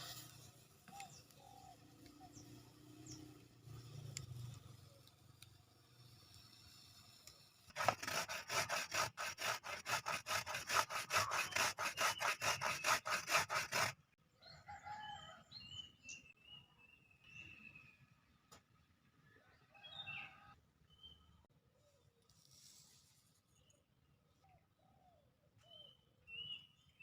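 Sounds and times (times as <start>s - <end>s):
fast rasping strokes: 6.0s - 14.0s.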